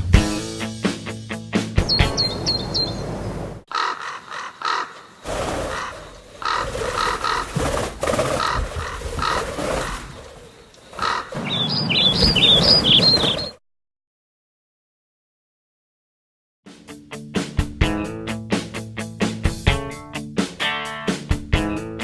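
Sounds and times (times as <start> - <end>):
short high bird chirps: 1.8 - 3.5, 11.4 - 13.6
crow cawing: 2.1 - 9.6, 10.8 - 13.4.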